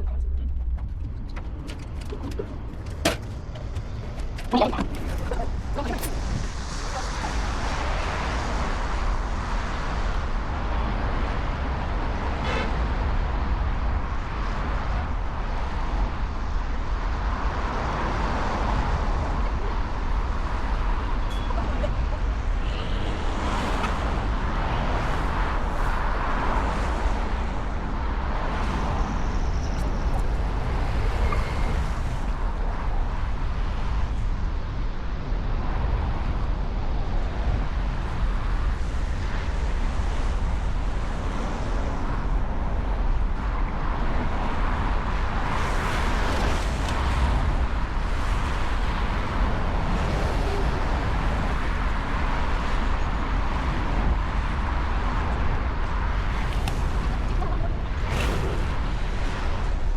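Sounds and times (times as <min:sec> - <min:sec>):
heavy low rumble: 0:00.0 - 0:28.6, 0:42.4 - 0:59.9.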